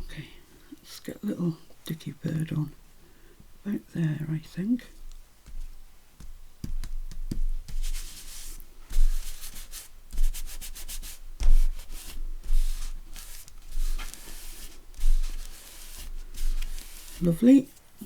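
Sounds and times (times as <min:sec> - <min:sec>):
paper scuffing: 0:04.9 - 0:18.0
dull bumps on work surface: 0:05.4 - 0:08.1.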